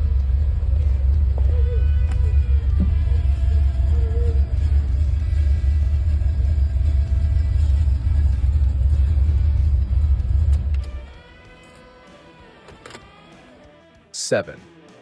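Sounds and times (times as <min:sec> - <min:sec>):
car engine low rumble: 0:00.0 - 0:11.9
faint background music: 0:00.0 - 0:15.0.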